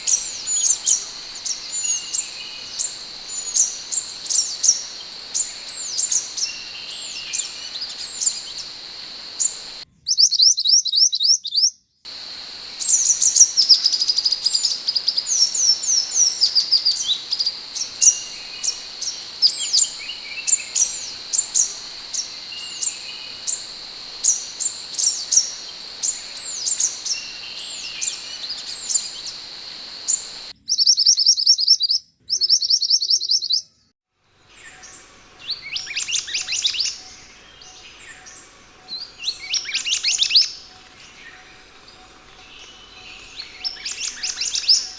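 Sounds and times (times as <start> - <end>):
bird calling high thin notes: 0.0 - 9.8, 12.1 - 30.5
bird chirping: 0.0 - 9.8, 12.1 - 30.5
steady high hiss: 0.0 - 9.8, 12.1 - 30.5.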